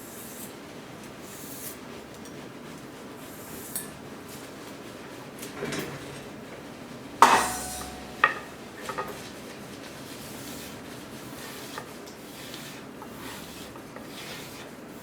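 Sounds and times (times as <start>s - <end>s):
metal tools clattering on workbench: 7.2s - 9.3s.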